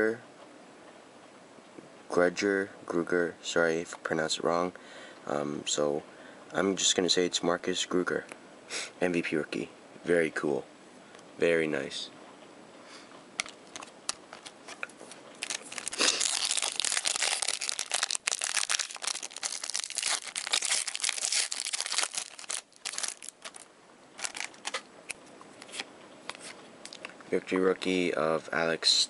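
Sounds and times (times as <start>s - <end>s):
foil wrapper crinkling and tearing: 13.4s - 24.9s.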